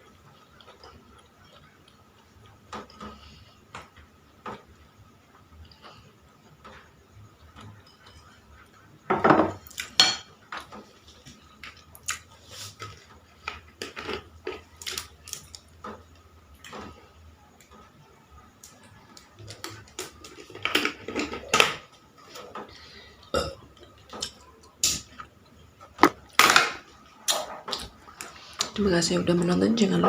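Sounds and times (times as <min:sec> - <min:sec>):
dishes and cutlery clinking: 0:07.6 - 0:08.4, 0:09.1 - 0:10.9.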